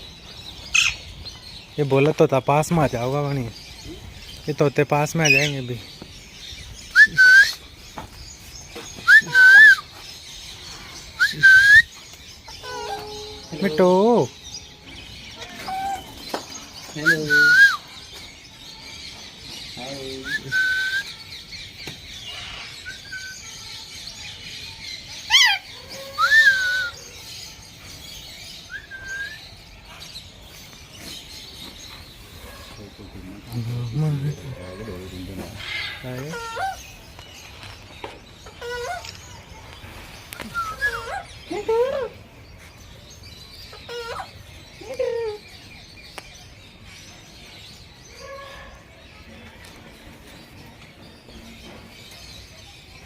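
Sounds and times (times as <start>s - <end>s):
small birds chirping: 0.0s - 53.0s
parrot whistled calls: 6.9s - 7.6s, 9.0s - 9.9s, 11.2s - 12.0s, 17.0s - 17.9s, 20.2s - 21.2s, 25.3s - 27.1s, 28.7s - 29.4s, 40.4s - 42.1s
parrots squawking: 12.5s - 14.1s, 15.3s - 16.2s, 25.3s - 27.0s, 34.2s - 37.1s, 38.4s - 39.2s, 40.5s - 42.2s, 43.7s - 44.6s
parrot squawks: 12.6s - 13.5s.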